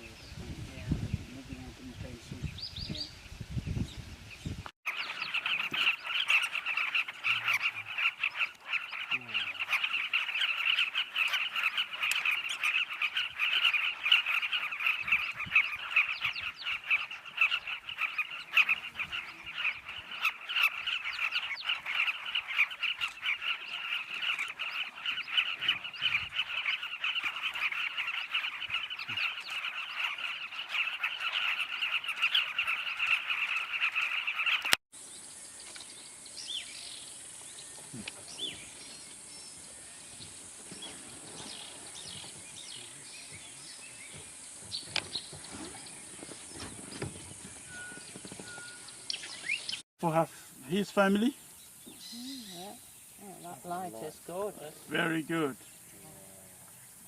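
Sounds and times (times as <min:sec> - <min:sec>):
chorus of animals chattering: 0:04.9 - 0:34.8, 0:49.4 - 0:51.4, 0:52.0 - 0:56.8.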